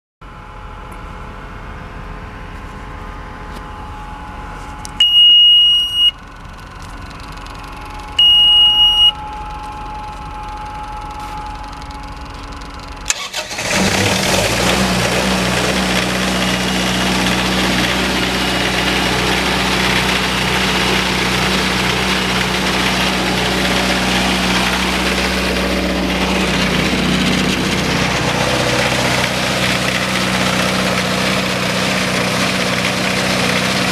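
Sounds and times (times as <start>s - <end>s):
diesel generator running: 0.2s - 33.9s
high electronic beeps: 5.0s - 6.2s, 8.1s - 12.4s.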